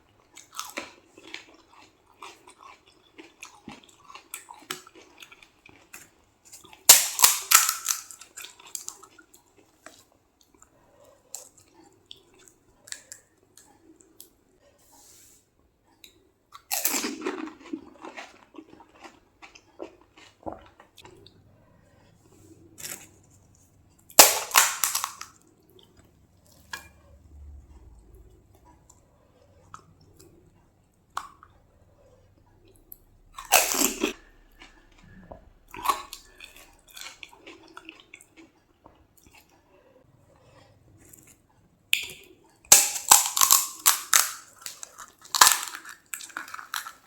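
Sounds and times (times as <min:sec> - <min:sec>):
crunching crisp shells: 0:00.4 - 0:09.8, 0:22.7 - 0:25.5, 0:33.2 - 0:38.5, 0:42.7 - 0:47.0
wet chewing and mouth clicks: 0:27.8 - 0:39.6.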